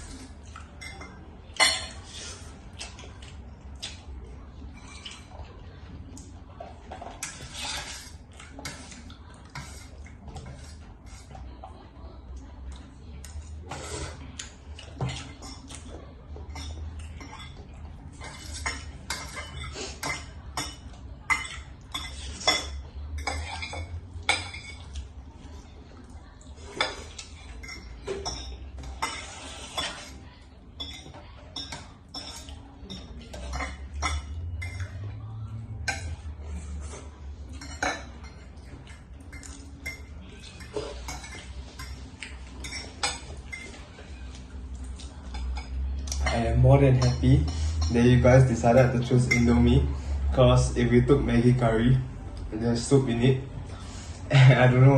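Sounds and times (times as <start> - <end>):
utensils clinking against a tray: 0.0 - 5.5, 13.1 - 25.1, 26.5 - 52.0.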